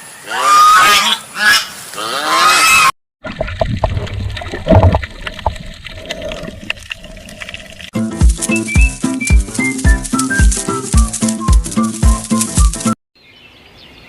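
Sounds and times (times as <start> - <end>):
water gurgling and trickling: 3.2 - 7.9
scattered clicks: 8.3 - 13.0.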